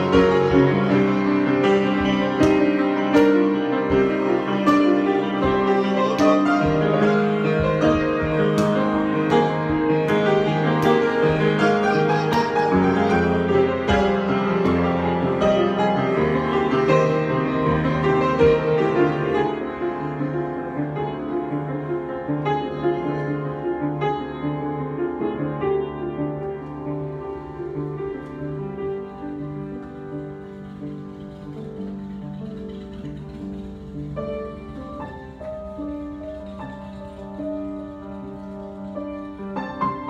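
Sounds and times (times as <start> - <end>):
slow piano chords and melody: 0.0 - 40.0.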